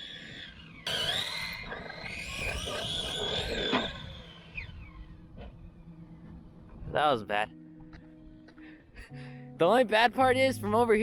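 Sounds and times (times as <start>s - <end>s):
toy truck motor whining: 0.0s - 5.8s.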